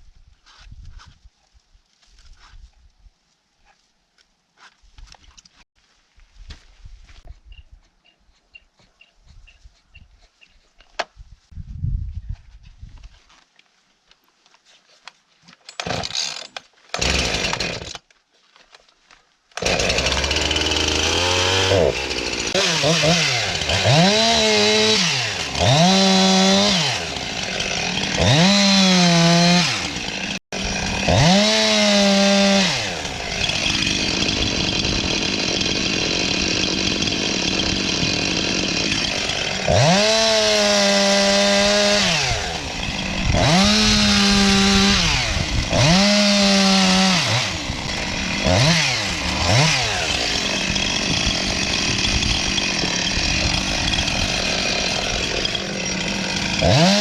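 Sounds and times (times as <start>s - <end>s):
chainsaw revving: 15.8s - 18.0s, 19.6s - 57.0s.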